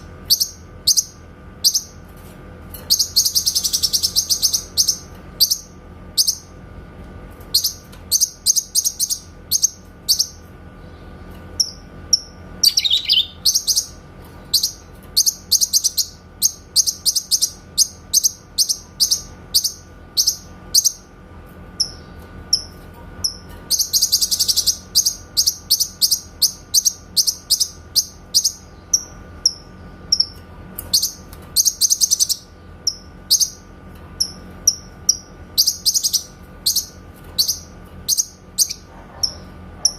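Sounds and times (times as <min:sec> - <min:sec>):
faint steady hum: 0:00.0 - 0:39.9
bird singing high chirps: 0:02.9 - 0:06.5, 0:11.6 - 0:21.0.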